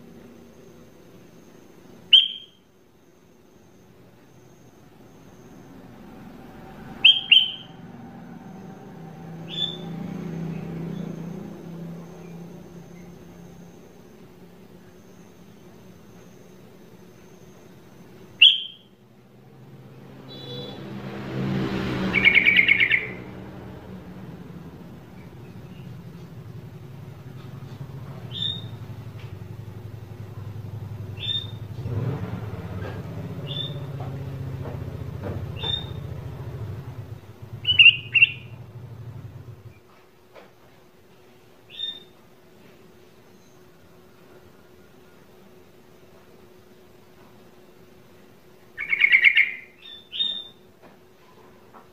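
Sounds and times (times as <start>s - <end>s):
bird chirping and trilling: 2.1s - 2.6s, 7.0s - 7.8s, 9.4s - 9.9s, 18.4s - 18.9s, 20.2s - 20.9s, 22.0s - 23.3s, 28.3s - 28.8s, 31.2s - 31.6s, 33.4s - 33.9s, 35.6s - 36.1s, 37.6s - 38.6s, 41.7s - 42.1s, 48.8s - 50.6s
short bird chirps: 2.1s - 2.6s, 7.0s - 7.8s, 18.4s - 18.9s
low steady rumble: 4.5s - 17.2s, 22.1s - 39.9s.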